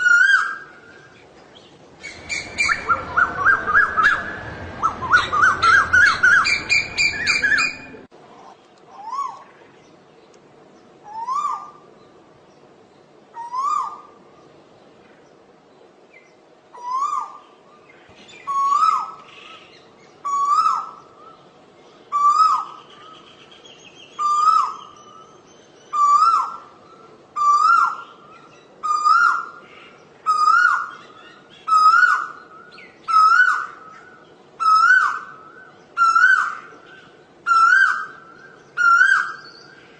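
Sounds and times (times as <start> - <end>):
bird calling rising whistled notes: 2.0 - 8.1, 11.0 - 11.9, 13.3 - 14.2, 16.7 - 21.4, 22.1 - 29.6, 30.2 - 39.9.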